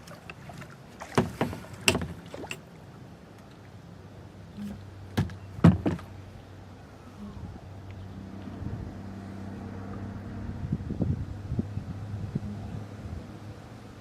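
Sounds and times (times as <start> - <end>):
knocks and taps on kayak: 5.2 - 6.1.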